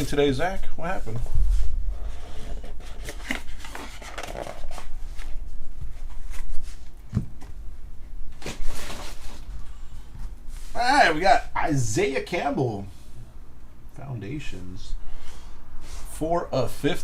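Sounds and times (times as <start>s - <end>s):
cards and packaging rustling: 2.2s - 5.4s.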